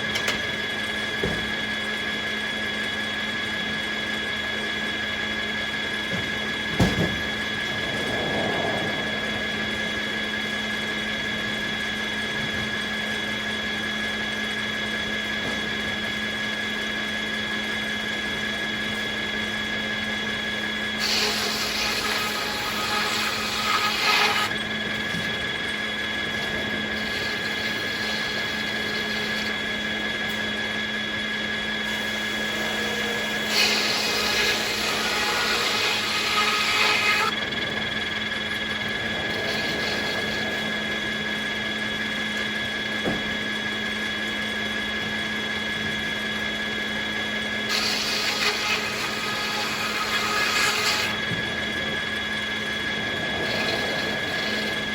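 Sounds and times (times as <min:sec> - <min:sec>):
sawmill humming: 0:00.0 - 0:54.9
saw blade cutting wood: 0:21.0 - 0:25.3, 0:26.8 - 0:30.5, 0:31.8 - 0:37.3, 0:47.7 - 0:51.2, 0:53.4 - 0:54.9.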